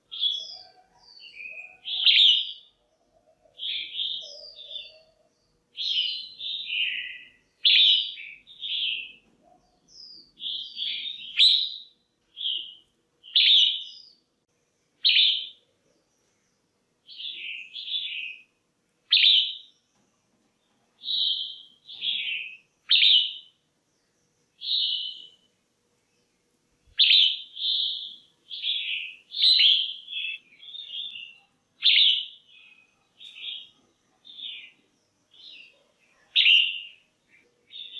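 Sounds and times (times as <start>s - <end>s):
bird chirping: 0.0s - 14.3s, 14.9s - 37.9s.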